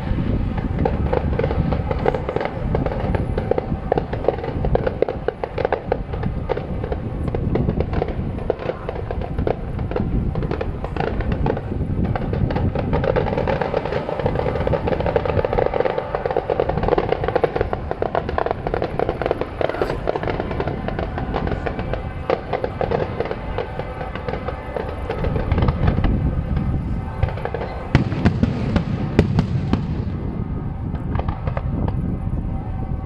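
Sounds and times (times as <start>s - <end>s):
fireworks bangs: 0.0s - 33.0s
fireworks crackling: 0.0s - 33.0s
low rumble: 9.2s - 33.0s.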